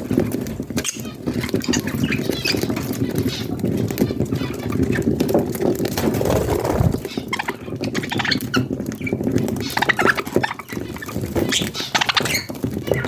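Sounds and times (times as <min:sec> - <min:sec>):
budgies chirping: 0:00.1 - 0:13.0
rapid pattering: 0:04.8 - 0:07.5.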